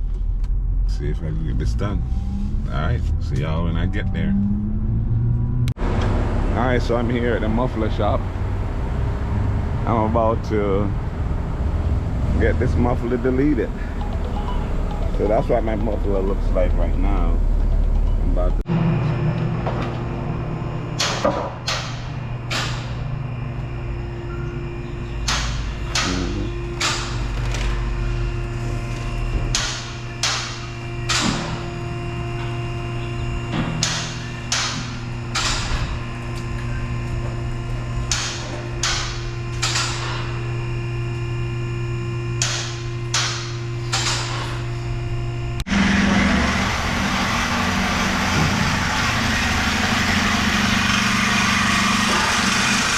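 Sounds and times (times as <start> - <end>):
steady mechanical hum: 0.0 - 52.9
hammer striking metal: 21.0 - 23.0, 25.2 - 27.2, 29.5 - 31.6, 33.5 - 35.9, 38.1 - 40.4, 42.4 - 44.6.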